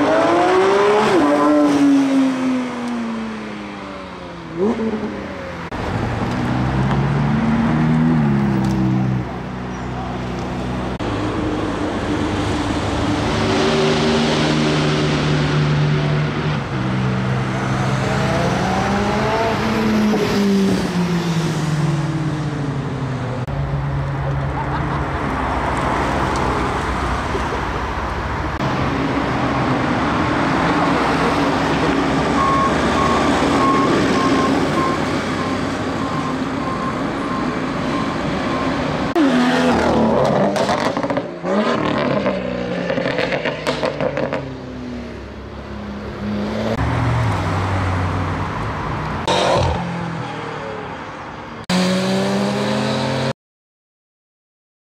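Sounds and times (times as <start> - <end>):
sports car engines accelerating: 0.0 - 26.6, 38.9 - 50.8, 51.6 - 53.3.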